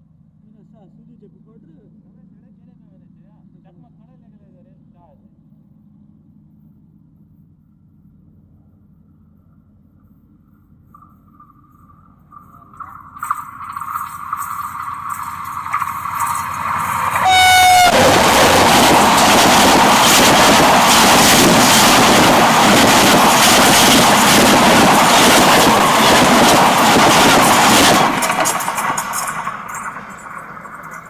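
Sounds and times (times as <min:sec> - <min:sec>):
train wheels rushing over rails: 0:13.9 - 0:31.0
train horn: 0:17.1 - 0:18.9.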